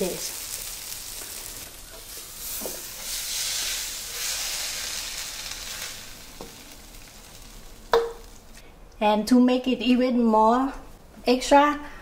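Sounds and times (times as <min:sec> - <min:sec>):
fried rice sizzling: 0:00.0 - 0:08.6.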